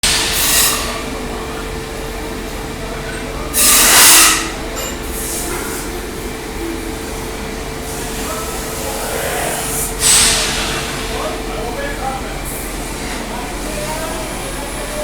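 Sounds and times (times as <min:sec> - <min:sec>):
machine hum with constant tone: 0:00.0 - 0:15.0
hiss: 0:08.6 - 0:11.2.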